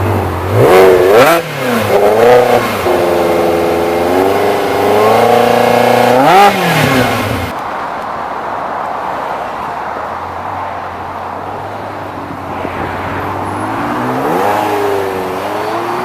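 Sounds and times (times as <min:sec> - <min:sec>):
car engine accelerating: 0:00.0 - 0:07.5
road noise: 0:00.0 - 0:16.0.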